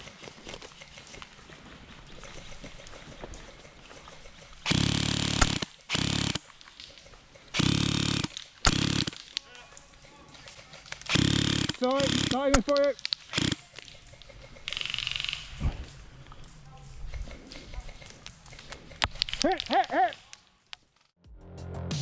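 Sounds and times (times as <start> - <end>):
sharp cracks: 0.0 - 21.0
airsoft gun automatic bursts: 2.3 - 15.6.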